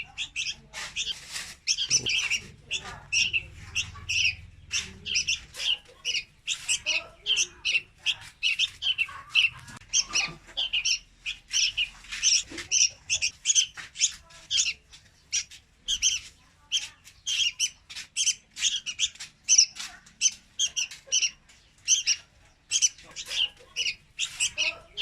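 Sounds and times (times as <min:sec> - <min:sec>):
young birds calling rapidly: 0:00.0 - 0:25.0.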